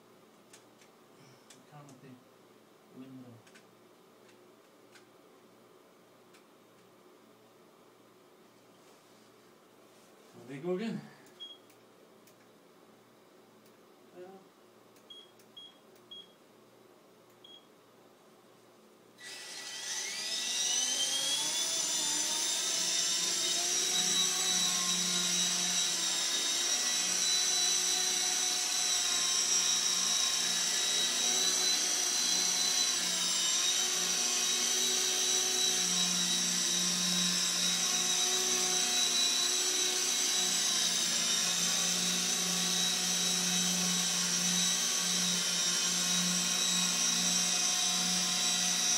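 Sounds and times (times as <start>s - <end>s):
electric motor whine: 19.2s - 48.9s.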